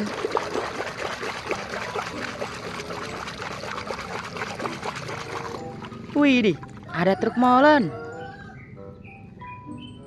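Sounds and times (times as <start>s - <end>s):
water running and splashing: 0.0s - 6.9s.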